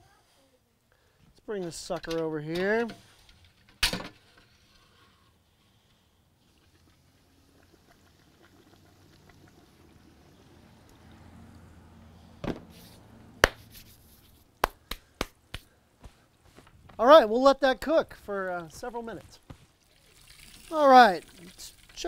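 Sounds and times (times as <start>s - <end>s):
frying oil bubbling: 6.4s - 11.3s, 19.8s - 22.0s.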